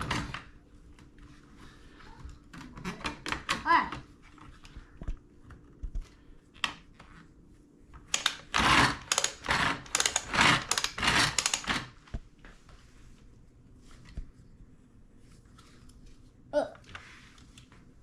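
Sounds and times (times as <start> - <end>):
plastic toy rattling and clattering: 8.1 - 11.9.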